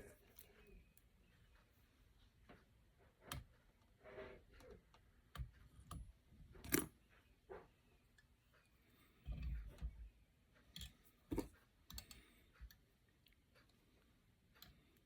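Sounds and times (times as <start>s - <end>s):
small clicks and taps of tools: 2.4s - 6.9s, 10.6s - 15.0s.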